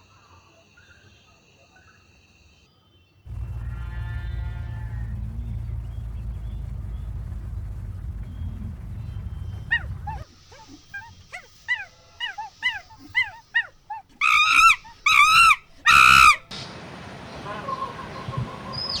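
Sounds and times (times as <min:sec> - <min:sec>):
animal rise-and-fall cries: 0:03.3 - 0:16.4
animal yelping: 0:03.4 - 0:16.4.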